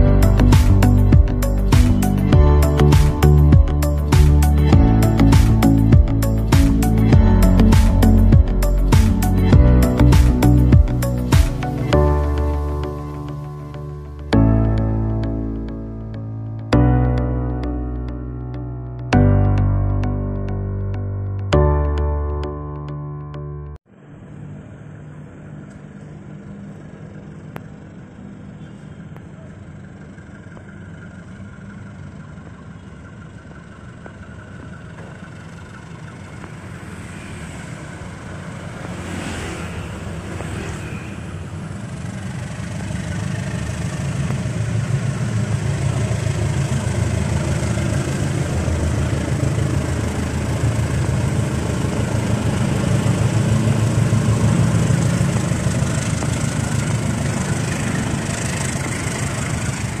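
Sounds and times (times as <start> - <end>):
locomotive engine running: 0.0 - 16.8, 24.2 - 60.0
passenger coaches rolling by: 24.0 - 60.0.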